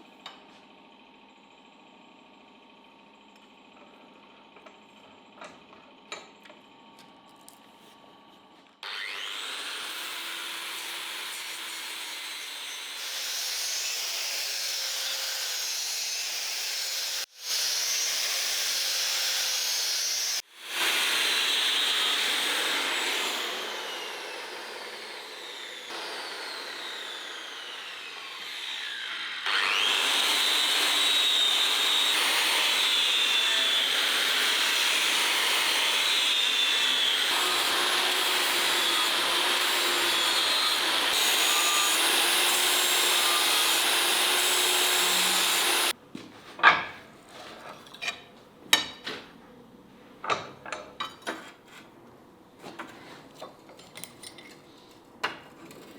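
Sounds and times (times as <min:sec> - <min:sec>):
electric grinder running: 0:08.8 - 0:45.9.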